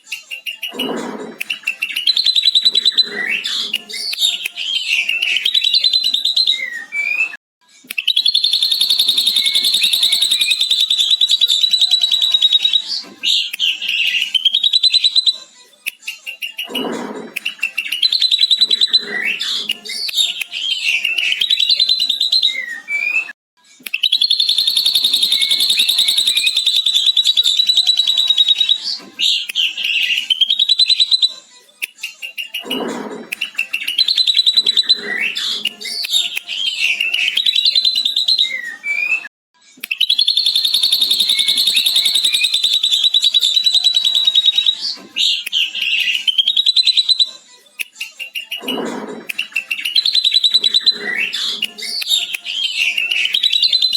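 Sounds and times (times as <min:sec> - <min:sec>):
bird chattering trill: 0:08.1 - 0:15.3, 0:24.0 - 0:28.8, 0:40.0 - 0:47.2
varied bird calls: 0:08.1 - 0:15.3, 0:24.0 - 0:31.3, 0:40.0 - 0:47.3.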